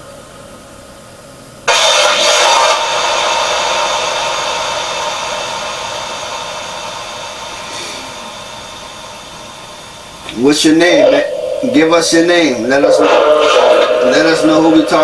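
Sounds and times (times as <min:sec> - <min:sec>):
electronic static hiss: 0:00.0 - 0:15.0
faint ringing tones: 0:10.0 - 0:15.0.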